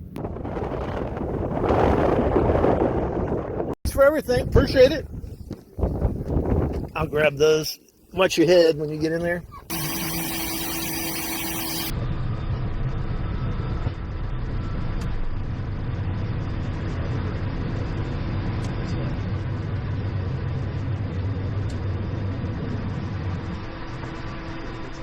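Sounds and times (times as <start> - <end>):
jet engines humming in cockpit: 9.6 - 25.0.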